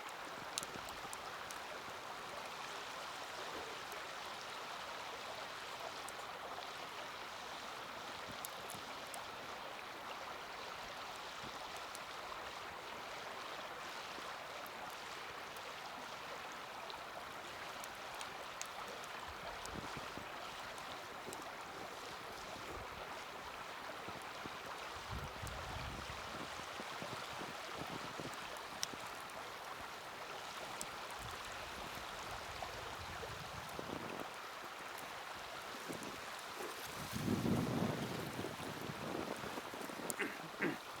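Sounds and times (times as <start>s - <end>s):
wood fire crackling: 0.1s - 1.7s, 17.1s - 32.6s, 33.4s - 41.0s
wind on microphone: 25.0s - 28.3s, 35.9s - 40.7s.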